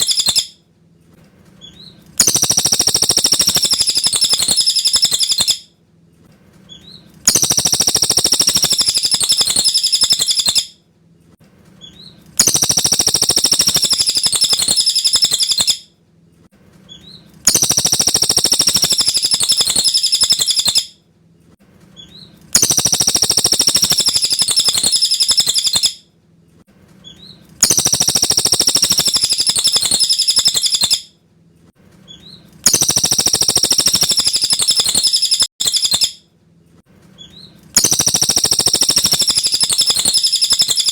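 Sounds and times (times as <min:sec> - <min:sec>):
high rapid bird chirping: 0:00.0 - 0:00.6, 0:01.6 - 0:05.7, 0:06.7 - 0:10.7, 0:11.8 - 0:15.8, 0:16.9 - 0:21.0, 0:22.0 - 0:26.0, 0:27.0 - 0:31.1, 0:32.1 - 0:36.2, 0:37.2 - 0:40.9.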